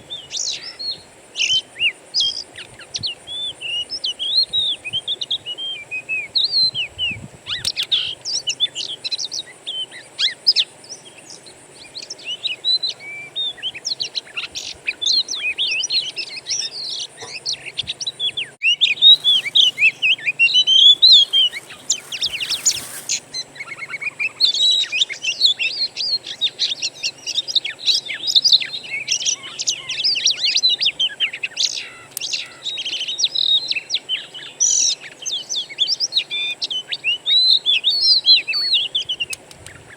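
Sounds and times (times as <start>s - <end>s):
songbirds chirping and whistling: 0.0s - 39.9s.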